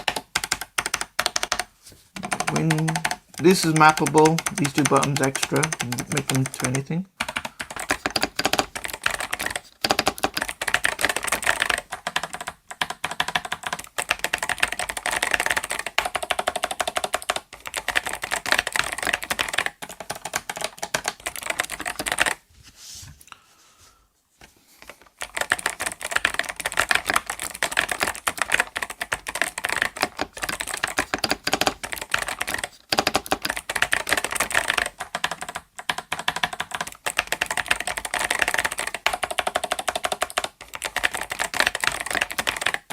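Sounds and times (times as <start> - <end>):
fast typing on clicky keyboard: 0.0 - 22.4, 24.8 - 42.9.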